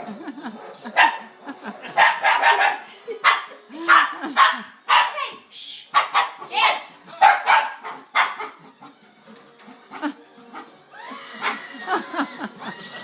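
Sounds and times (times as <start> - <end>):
dog barking: 0.6 - 9.0, 11.3 - 11.7.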